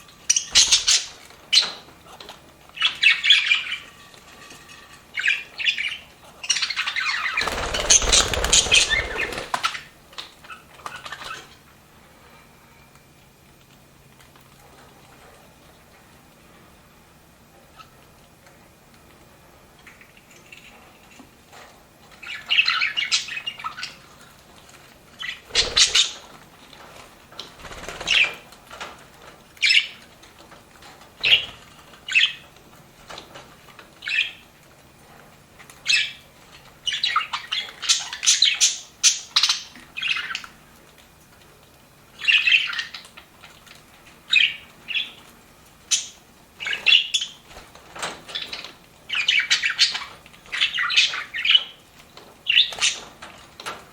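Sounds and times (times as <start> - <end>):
budgerigars chirping and warbling: 0.0 - 4.1, 4.9 - 11.6, 22.2 - 24.1, 25.2 - 26.4, 31.2 - 32.5, 35.8 - 40.5, 42.2 - 43.2, 44.3 - 45.3, 45.9 - 47.5, 48.3 - 51.8, 52.4 - 53.1.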